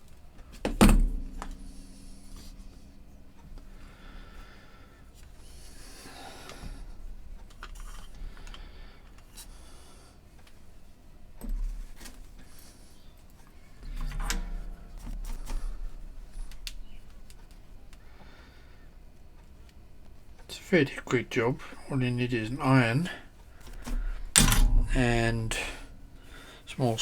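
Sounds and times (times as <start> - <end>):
low bumps: 0.7 - 8.8
cable handling: 13.8 - 18.0.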